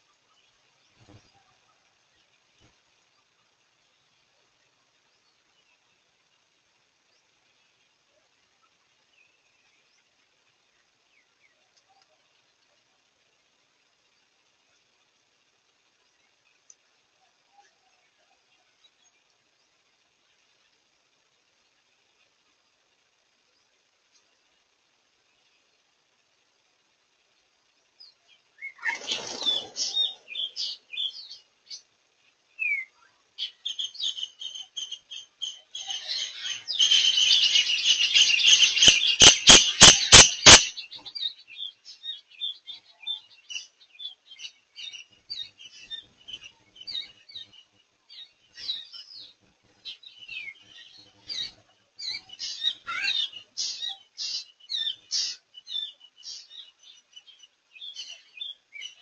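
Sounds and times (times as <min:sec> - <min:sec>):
birds chirping and calling: 0:28.0 - 0:31.9, 0:32.6 - 0:59.0.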